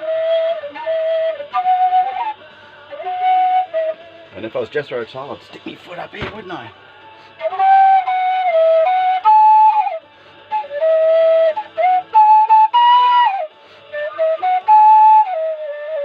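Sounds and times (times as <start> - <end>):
low whistle melody: 0.0 - 4.4, 7.2 - 16.0.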